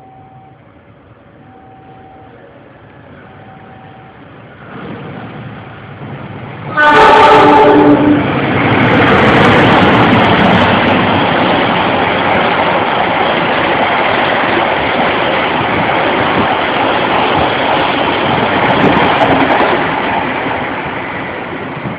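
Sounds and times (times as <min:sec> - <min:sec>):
train wheels rushing on rails: 0:04.2 - 0:21.9.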